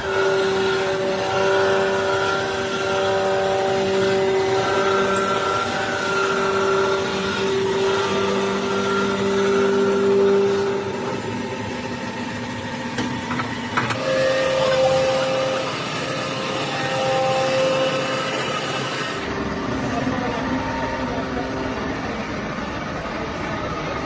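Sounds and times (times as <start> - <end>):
machine motor whining: 0.0 - 24.0.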